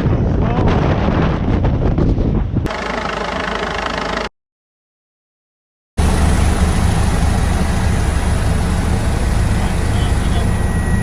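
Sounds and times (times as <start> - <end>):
helicopter rotor and turbine: 2.7 - 4.3, 6.0 - 11.0
thin high whine: 6.0 - 11.0.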